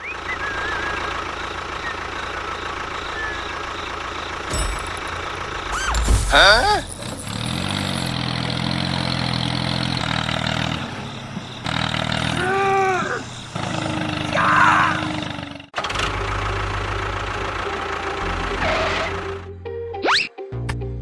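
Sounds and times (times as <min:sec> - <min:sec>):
low steady engine running: 0:15.9 - 0:19.4.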